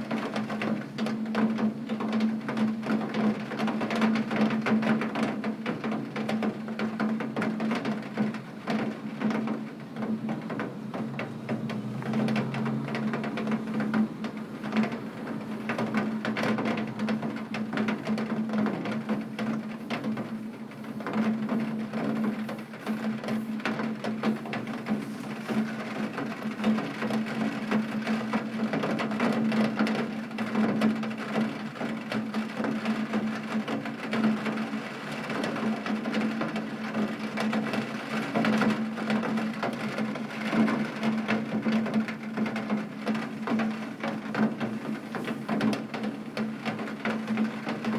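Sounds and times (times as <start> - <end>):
rain on a window: 0.0 - 47.9.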